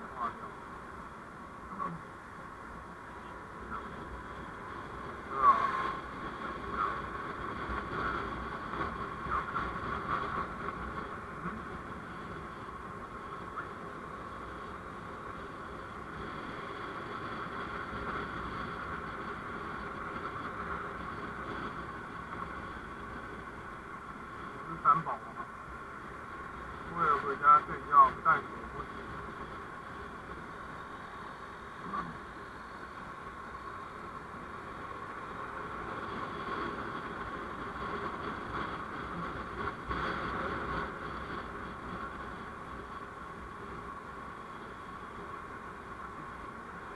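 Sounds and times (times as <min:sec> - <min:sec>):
vehicle road noise: 0:00.0 - 0:46.9.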